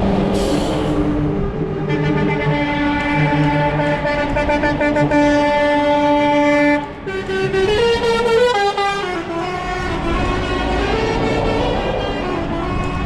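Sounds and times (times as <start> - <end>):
truck air horns blaring: 0.4 - 13.0.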